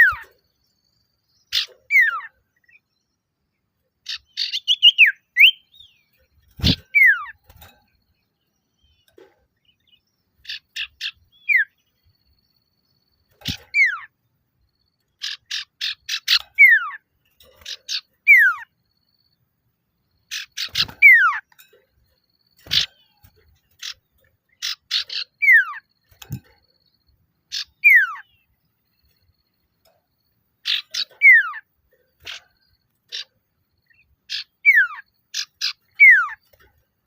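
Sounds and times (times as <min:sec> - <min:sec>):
bird chip notes and whistles: 0:00.0 - 0:00.4, 0:01.4 - 0:02.8, 0:04.1 - 0:07.6, 0:09.7 - 0:12.1, 0:14.9 - 0:17.0, 0:17.6 - 0:18.7, 0:20.3 - 0:29.2, 0:30.7 - 0:36.5.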